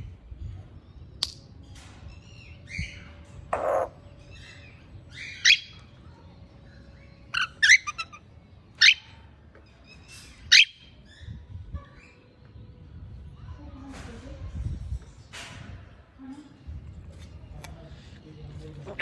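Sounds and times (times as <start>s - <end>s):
parrot whistled calls: 5.1s - 5.9s, 7.4s - 8.2s, 8.8s - 9.1s, 10.5s - 11.3s.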